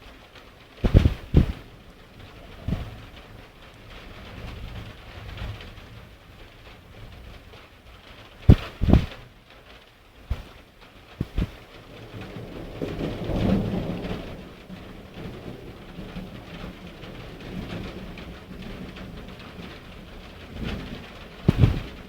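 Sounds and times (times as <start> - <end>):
thunder rumbling: 0.0 - 7.5, 8.4 - 9.3, 10.3 - 22.0
steady rain: 0.0 - 22.0
sharp knocks: 0.8 - 1.5, 8.5 - 9.1, 11.2 - 11.6, 21.5 - 22.0.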